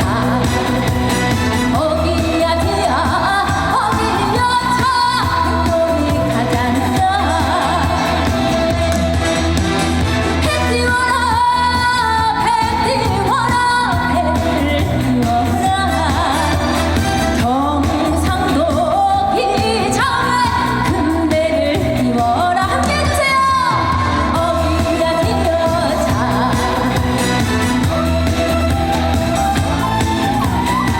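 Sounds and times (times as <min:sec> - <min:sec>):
woman singing: 0:00.0 - 0:09.6, 0:10.3 - 0:30.9
amplified backing music: 0:00.0 - 0:30.9.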